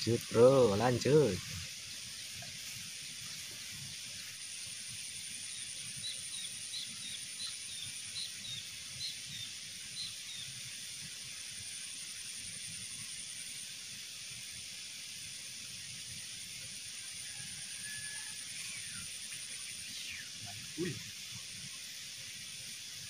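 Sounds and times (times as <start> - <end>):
steady hiss: 0.0 - 23.0
water trickling in a ditch: 0.0 - 23.0.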